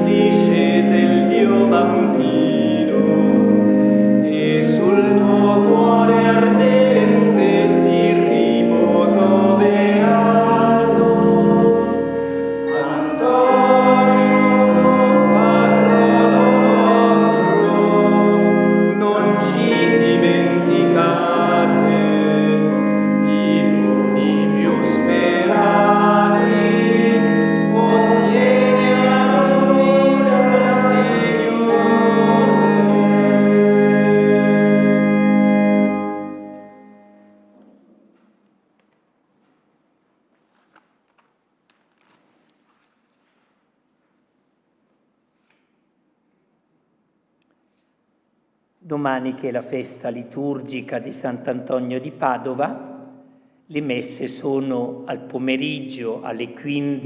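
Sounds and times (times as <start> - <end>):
voices singing a hymn: 0.0 - 37.3
church organ: 0.0 - 44.1, 48.8 - 57.0.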